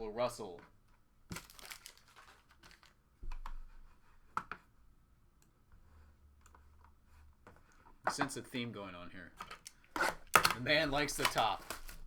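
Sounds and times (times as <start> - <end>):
cards clicking and rustling: 1.3 - 3.0, 9.4 - 12.0.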